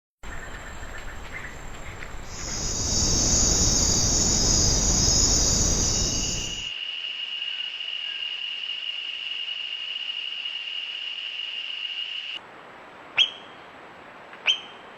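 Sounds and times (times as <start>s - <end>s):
insects buzzing in chorus: 0.3s - 12.4s
steady rushing noise: 1.5s - 6.7s
faint chirps: 2.3s - 6.7s.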